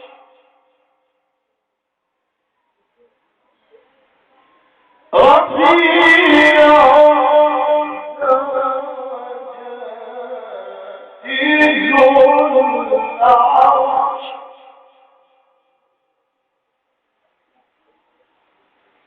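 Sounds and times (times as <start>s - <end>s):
man reciting in melodic chant: 0.0s - 0.9s, 5.1s - 15.7s.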